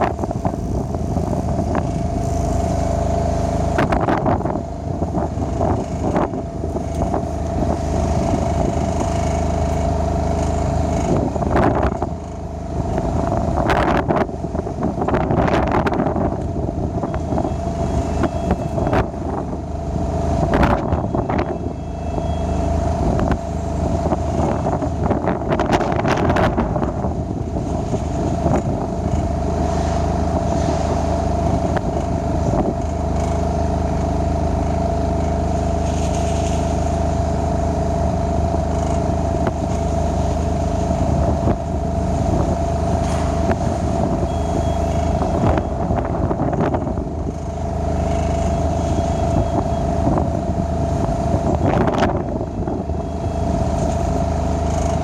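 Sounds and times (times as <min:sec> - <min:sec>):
diesel engine running steadily: 0:00.0 - 0:55.0
wind buffeting microphone: 0:00.0 - 0:55.0.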